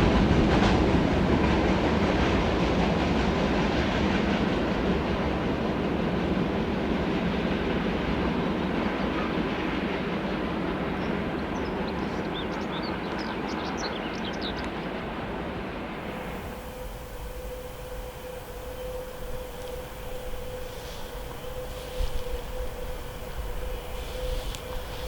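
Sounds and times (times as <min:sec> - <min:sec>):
freight wagons rumbling on rails: 0:16.0 - 0:25.0.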